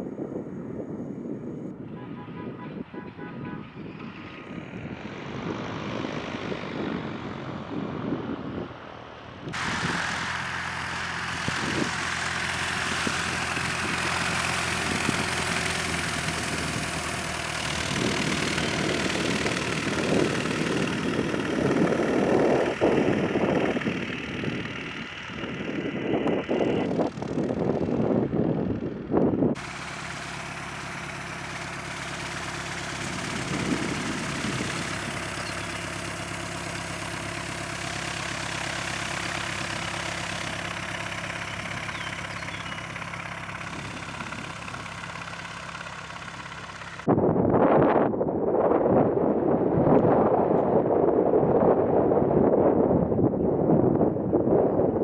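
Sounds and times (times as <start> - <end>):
wind buffeting on microphone: 0.0 - 10.2, 11.2 - 29.6, 31.2 - 45.2, 47.0 - 55.0
propeller airplane engine running: 0.0 - 55.0.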